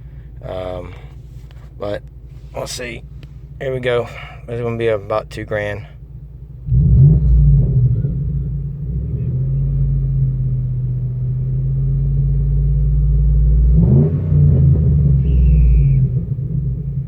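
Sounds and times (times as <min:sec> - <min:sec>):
truck engine droning and revving: 0:06.6 - 0:17.0.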